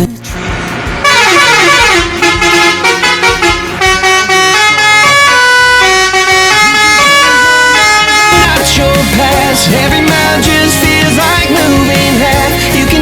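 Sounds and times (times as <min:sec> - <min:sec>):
vehicle horns honking: 0:01.0 - 0:08.5.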